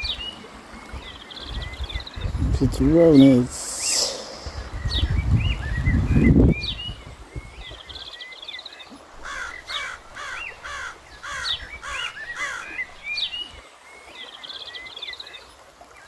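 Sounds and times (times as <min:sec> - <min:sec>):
high trilling bird calls: 0:03.1 - 0:08.2, 0:09.3 - 0:13.5
harsh repeated bird calls: 0:09.2 - 0:13.0.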